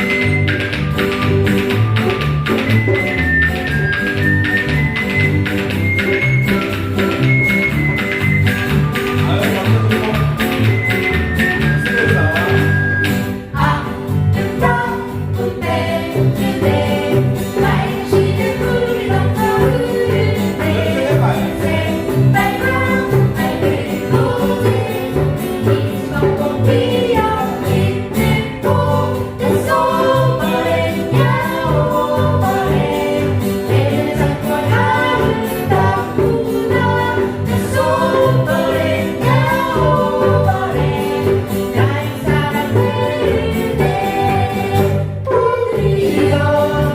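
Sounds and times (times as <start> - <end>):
instrumental accompaniment with beat: 0.0 - 46.9
group of voices singing: 13.4 - 46.9.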